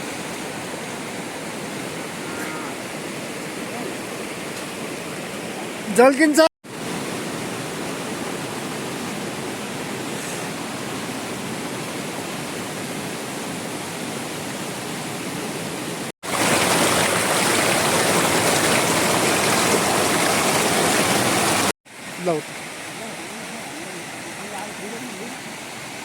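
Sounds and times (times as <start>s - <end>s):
heavy rain falling: 16.2s - 25.4s.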